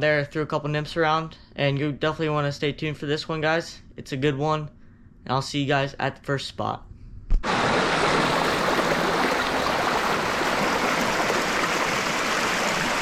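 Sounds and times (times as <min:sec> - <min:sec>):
creek water flowing: 0:07.4 - 0:13.0.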